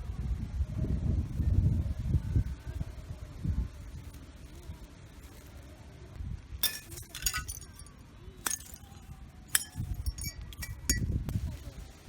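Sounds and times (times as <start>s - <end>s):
hard objects clinking: 6.6s - 11.2s.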